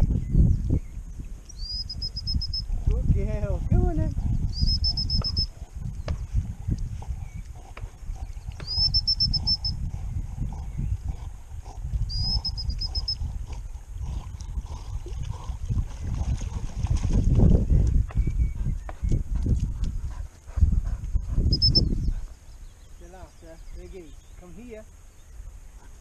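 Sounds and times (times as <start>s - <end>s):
small bird calling with trill: 1.5s - 2.7s, 4.5s - 5.5s, 8.5s - 9.8s, 12.1s - 13.2s, 21.5s - 25.4s.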